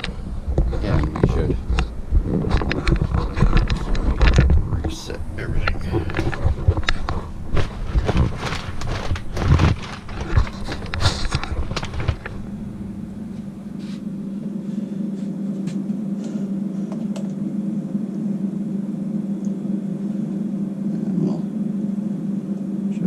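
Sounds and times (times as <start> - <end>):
steady low hum: 0.0 - 23.0
objects being handled: 5.6 - 12.5.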